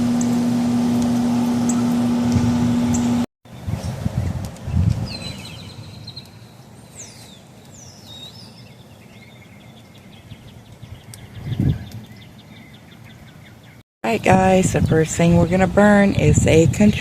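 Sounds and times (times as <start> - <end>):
low rumbles: 0.0 - 6.2
bird chirping: 2.8 - 4.0, 4.7 - 13.8.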